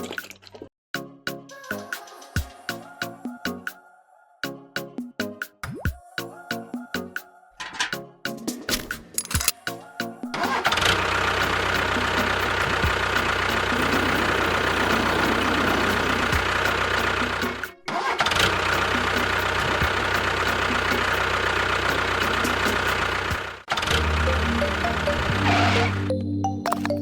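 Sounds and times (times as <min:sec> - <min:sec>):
engine running: 0:10.5 - 0:26.1.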